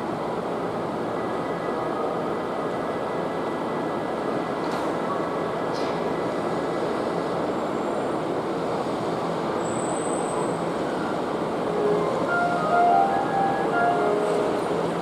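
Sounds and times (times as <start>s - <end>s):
electric train wheels rumbling on rails: 0.0s - 15.0s
faint high whine: 11.6s - 15.0s.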